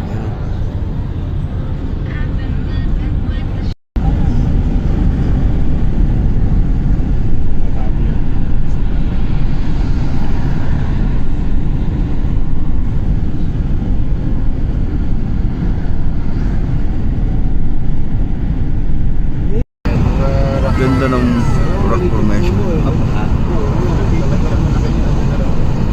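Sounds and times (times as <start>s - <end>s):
vehicle rumble: 0.0s - 25.9s.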